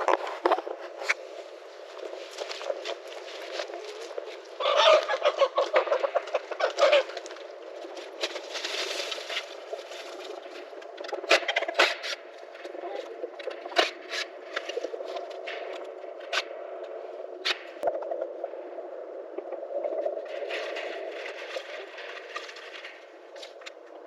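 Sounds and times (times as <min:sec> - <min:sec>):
chickens clucking: 0:02.1 - 0:16.4.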